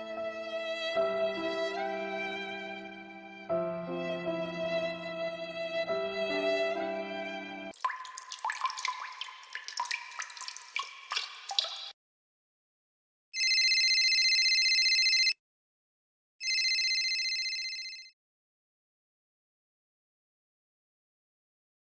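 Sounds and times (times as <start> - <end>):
water drops plinking: 7.8 - 12.0
telephone ringing: 13.4 - 15.4, 16.4 - 18.1.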